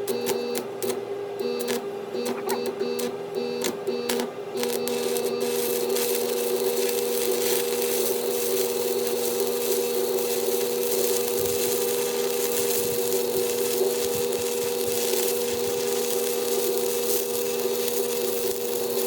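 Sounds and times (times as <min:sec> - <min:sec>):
welding machine hum: 0:00.0 - 0:19.0
welding arc crackling hiss: 0:04.6 - 0:19.0.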